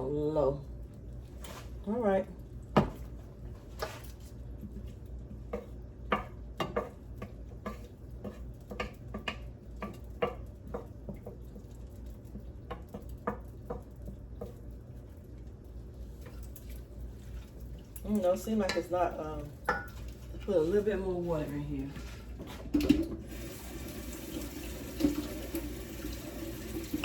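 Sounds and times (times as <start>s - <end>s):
utensil clinking against pots: 18.0s - 20.2s.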